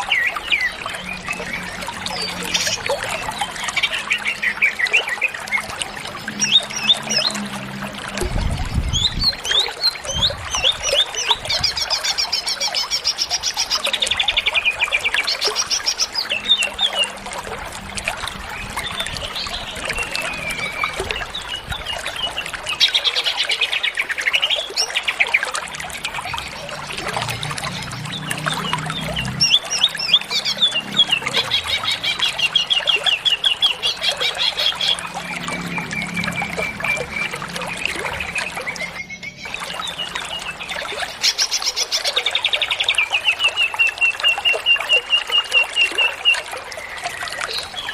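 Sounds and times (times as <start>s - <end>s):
bird singing trills: 18.5s - 25.3s, 26.3s - 47.9s.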